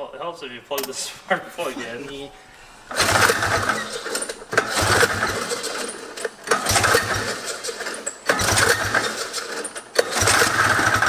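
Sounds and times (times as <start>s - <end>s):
snowmobile engine turning over: 2.9s - 11.0s.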